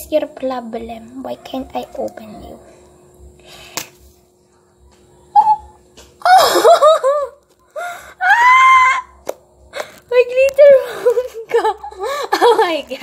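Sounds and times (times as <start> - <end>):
woman laughing: 6.2 - 7.4, 10.6 - 13.0
woman crying out: 8.2 - 9.2.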